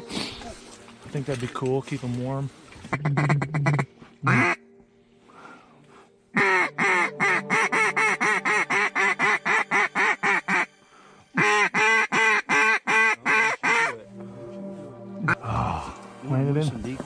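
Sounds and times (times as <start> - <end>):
duck quacking rapidly: 2.9 - 4.6, 6.4 - 10.7, 11.4 - 14.0.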